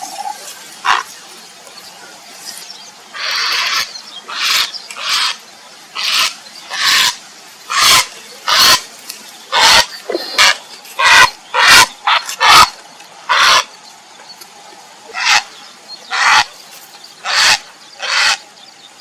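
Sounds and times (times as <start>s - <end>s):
heron harsh calls: 0.8s - 1.1s, 3.2s - 5.4s, 6.0s - 8.8s, 9.5s - 12.7s, 13.3s - 13.7s, 15.1s - 15.5s, 16.1s - 16.5s, 17.2s - 18.4s.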